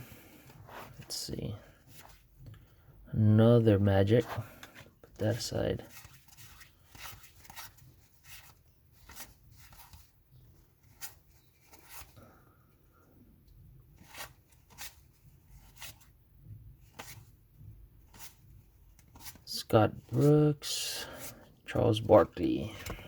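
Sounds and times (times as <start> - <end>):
trading cards clicking and rustling: 22.0 - 23.0.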